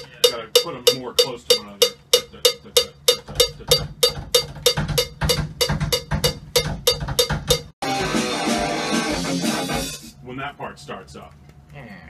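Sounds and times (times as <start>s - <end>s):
metronome clicking: 0.0s - 7.7s
electric guitar music: 7.8s - 10.0s.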